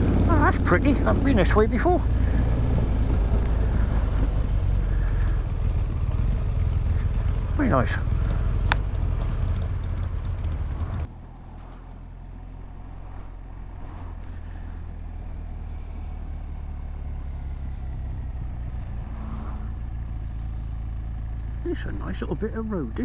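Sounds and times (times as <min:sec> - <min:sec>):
motorcycle engine: 0:00.0 - 0:23.0
wind noise: 0:02.0 - 0:05.1.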